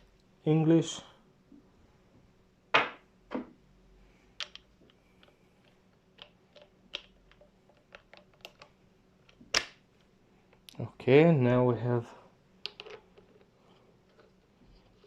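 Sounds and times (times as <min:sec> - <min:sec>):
small hard parts clicking: 0:04.4 - 0:09.7.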